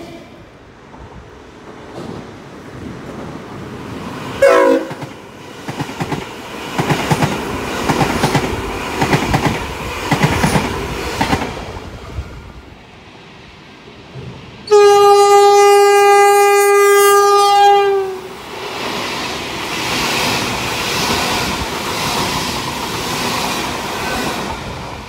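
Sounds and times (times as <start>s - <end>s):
train horn blast: 4.4s - 5.0s, 14.6s - 18.3s.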